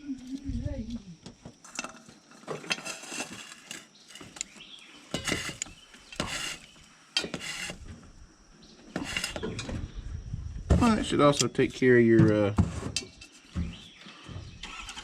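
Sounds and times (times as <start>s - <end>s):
metallic scrapes and clanks: 1.7s - 4.4s, 5.1s - 7.9s, 9.0s - 9.7s.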